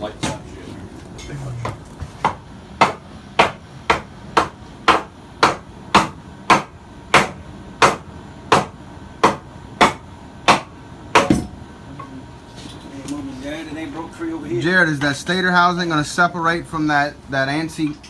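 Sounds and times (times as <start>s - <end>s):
hammer striking wood on metal: 1.6s - 11.6s.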